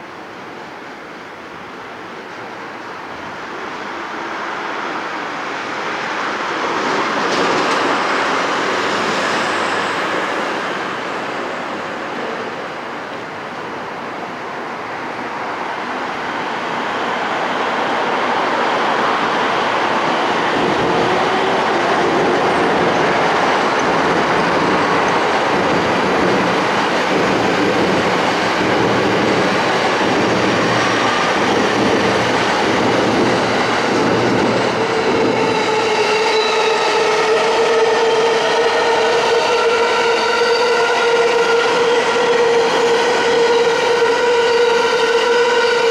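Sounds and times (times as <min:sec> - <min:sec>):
electric train rolling on track: 0:00.2 - 0:45.9.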